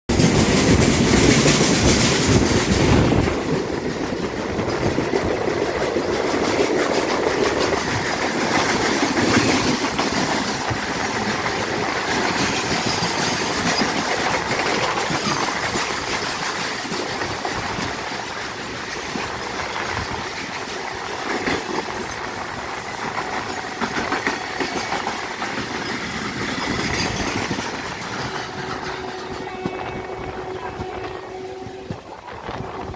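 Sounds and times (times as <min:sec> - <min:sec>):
freight train wheels clattering: 0:00.1 - 0:32.9.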